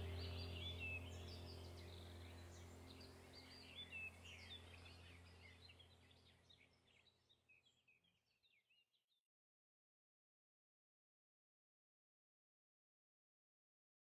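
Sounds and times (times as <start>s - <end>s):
steady low hum: 0.0s - 6.5s
faint birds chirping: 0.0s - 9.3s.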